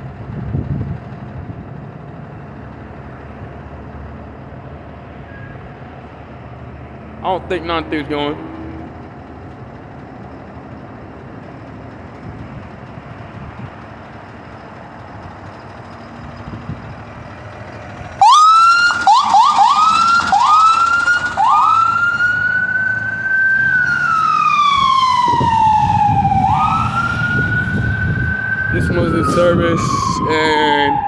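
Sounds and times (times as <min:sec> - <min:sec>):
heavy vehicle engine rumbling: 0:00.0 - 0:31.0
traffic hum: 0:00.0 - 0:31.0
emergency vehicle siren: 0:07.0 - 0:09.0, 0:16.2 - 0:31.0.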